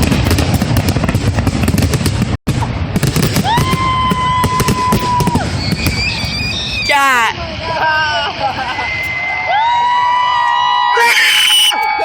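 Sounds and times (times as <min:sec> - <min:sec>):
fireworks cracks and bangs: 0:00.0 - 0:07.0
high steady whistle: 0:05.3 - 0:07.1, 0:08.4 - 0:12.0.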